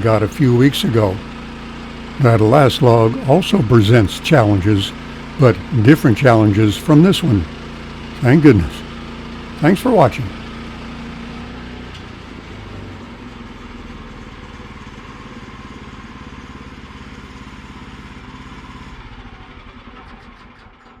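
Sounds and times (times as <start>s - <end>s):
engine running: 0.0s - 20.9s.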